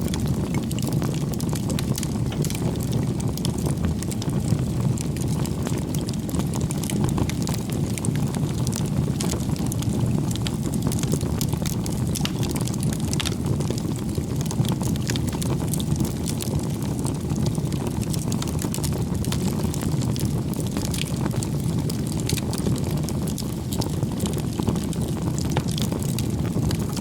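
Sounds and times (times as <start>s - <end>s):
bonfire crackling and popping: 0.0s - 27.0s.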